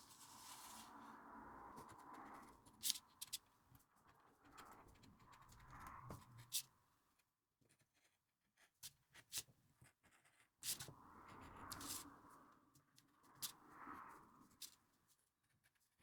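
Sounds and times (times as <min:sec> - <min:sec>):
paper rustling and sliding: 0:00.0 - 0:00.9.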